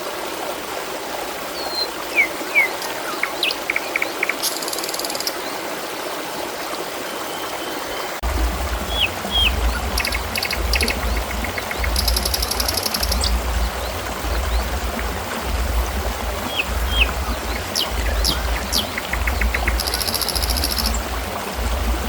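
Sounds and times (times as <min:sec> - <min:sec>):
trickling stream water: 0:00.0 - 0:22.0
small birds chirping: 0:01.6 - 0:05.5, 0:08.8 - 0:21.1
low rumble: 0:08.2 - 0:12.2, 0:13.2 - 0:19.8.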